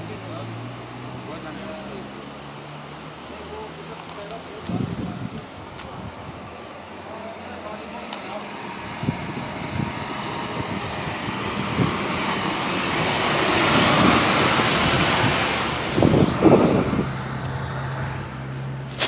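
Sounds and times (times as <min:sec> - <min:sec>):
vehicle passing by: 0:00.0 - 0:05.3, 0:05.9 - 0:19.0
low rumbles: 0:04.2 - 0:19.0.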